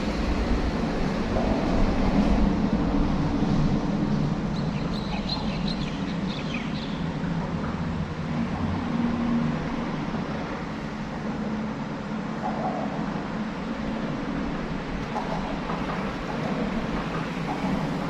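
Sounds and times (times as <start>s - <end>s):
bird chirps: 4.6s - 7.0s.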